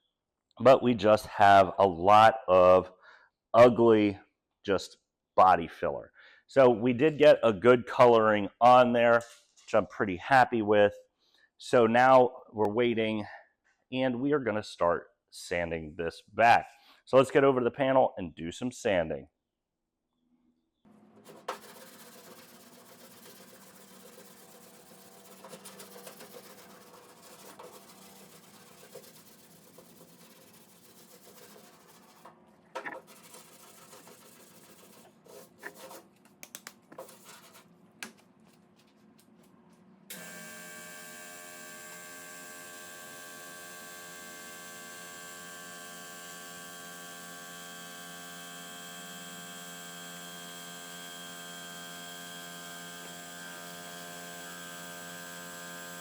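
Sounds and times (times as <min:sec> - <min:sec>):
sandpaper scraping by hand: 0:21.3 - 0:32.3, 0:33.0 - 0:36.1, 0:36.9 - 0:37.7.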